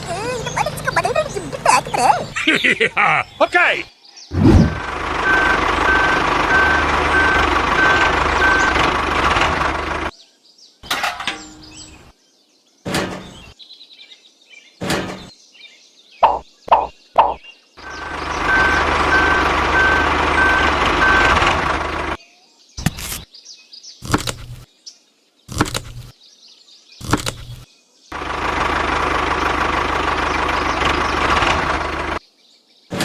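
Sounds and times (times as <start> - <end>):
truck running: 0.0 - 10.1, 16.2 - 22.2, 27.0 - 32.2
reversing alarm beeping: 4.7 - 8.8, 17.8 - 21.4
quick high chirps: 16.2 - 17.4
sharp knocks: 16.2 - 17.4.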